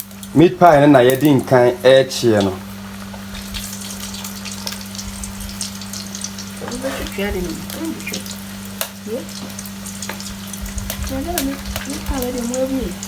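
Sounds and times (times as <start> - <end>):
food sizzling in hot oil: 0.0 - 13.0
steady low hum: 0.0 - 13.0.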